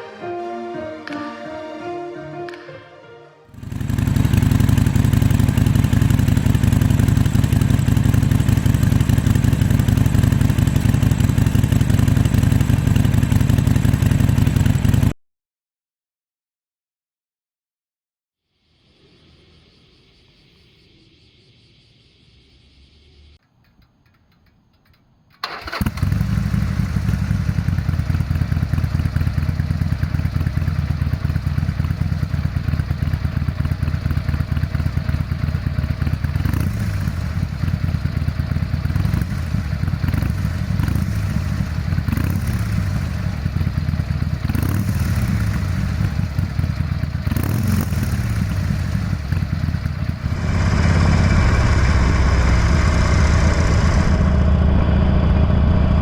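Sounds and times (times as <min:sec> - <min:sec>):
motorcycle engine idling: 0:03.5 - 0:15.1, 0:23.6 - 0:56.0.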